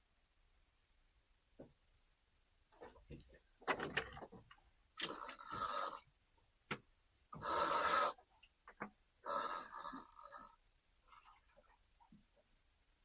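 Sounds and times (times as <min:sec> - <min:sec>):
close-up rubbing and scraping: 0:05.0 - 0:06.0, 0:07.4 - 0:08.2, 0:09.3 - 0:11.5.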